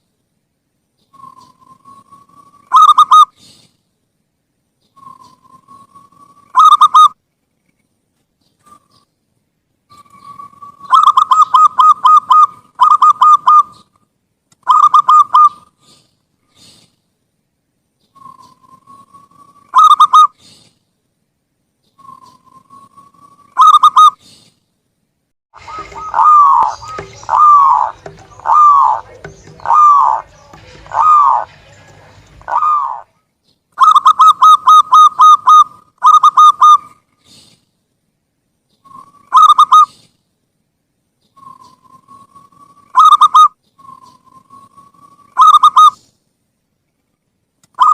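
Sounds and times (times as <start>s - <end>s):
dove cooing: 2.7s - 3.3s, 6.5s - 7.1s, 10.0s - 13.8s, 14.7s - 15.6s, 19.7s - 20.3s, 23.6s - 24.2s, 25.6s - 33.1s, 33.8s - 37.0s, 38.9s - 40.0s, 42.9s - 46.0s.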